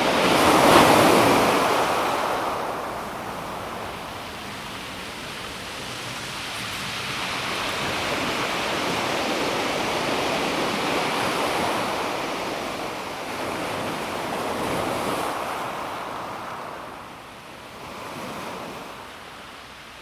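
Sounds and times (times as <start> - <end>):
waves washing onto pebble beach: 0.0 - 13.1.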